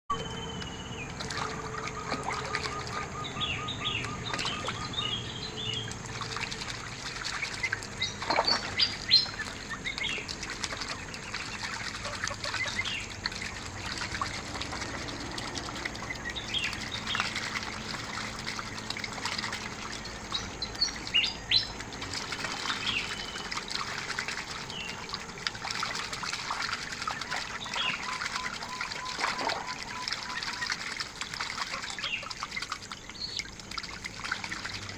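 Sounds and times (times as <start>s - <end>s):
ducks whistling: 0.1s - 5.5s, 27.0s - 32.4s
water trickling: 0.1s - 34.9s.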